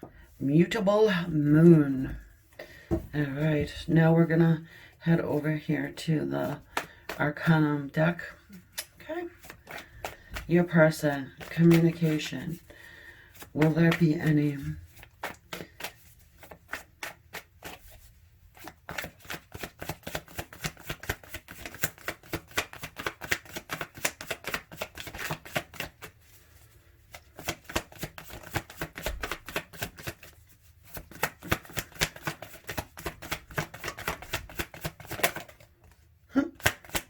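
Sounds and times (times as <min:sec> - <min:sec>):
cards being shuffled: 0:06.4 - 0:07.2, 0:08.6 - 0:37.0.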